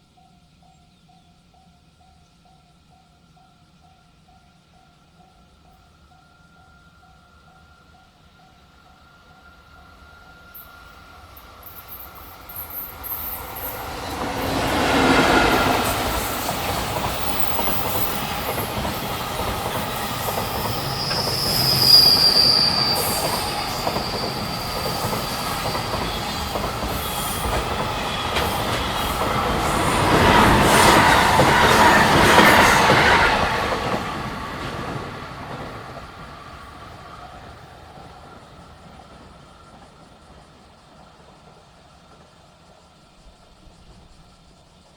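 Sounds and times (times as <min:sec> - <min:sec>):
freight train wheels rumbling: 0:09.6 - 0:44.4
high wheel squeal: 0:11.6 - 0:33.7.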